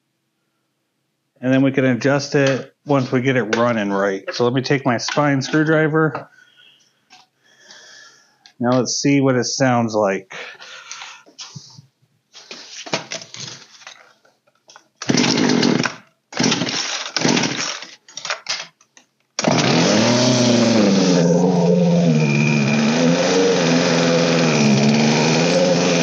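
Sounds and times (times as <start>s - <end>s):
chainsaw engine running: 15.0s - 17.8s, 19.4s - 26.0s
chainsaw starter cord pulls: 15.0s - 18.7s, 19.4s - 26.0s.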